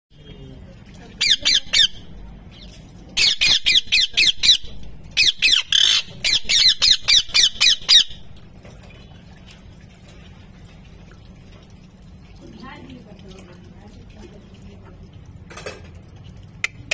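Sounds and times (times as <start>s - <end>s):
parrot screeching: 3.2s - 8.2s.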